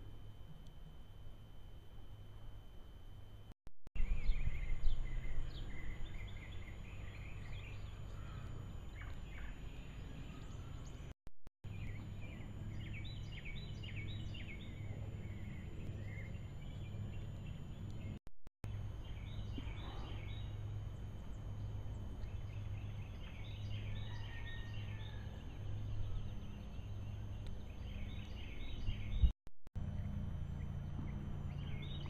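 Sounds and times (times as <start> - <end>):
steady low rumble: 0.0 - 24.0
small birds chirping: 4.0 - 11.1, 11.7 - 29.3, 29.9 - 32.0.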